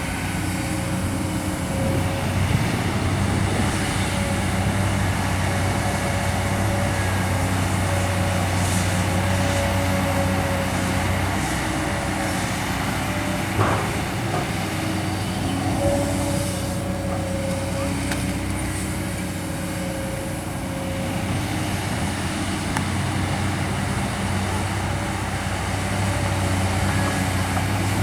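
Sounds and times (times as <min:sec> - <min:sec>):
excavator diesel engine running: 0:00.0 - 0:28.0
high hydraulic whine: 0:00.0 - 0:28.0.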